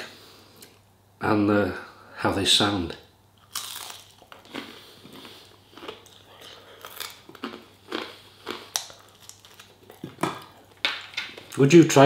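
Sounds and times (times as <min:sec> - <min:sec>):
crunching fried food: 0:03.4 - 0:11.7.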